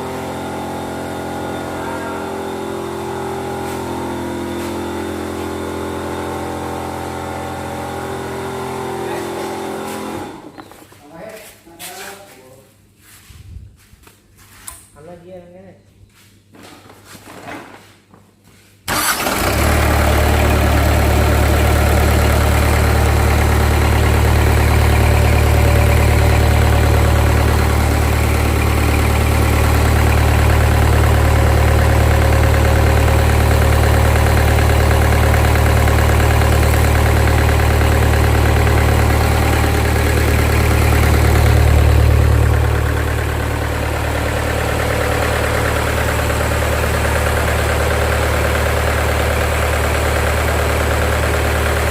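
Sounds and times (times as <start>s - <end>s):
diesel engine starting and running: 0.0s - 10.7s, 18.9s - 51.9s.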